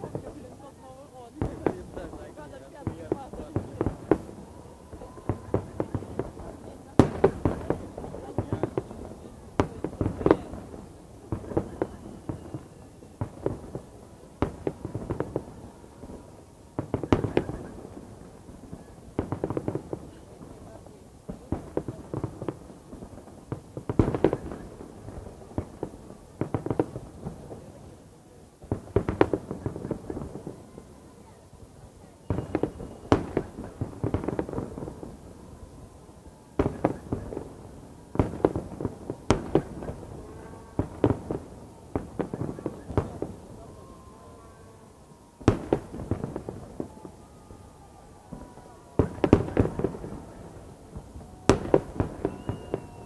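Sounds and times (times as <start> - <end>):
fireworks bangs: 0.0 - 53.0
fireworks crackling: 0.0 - 53.0.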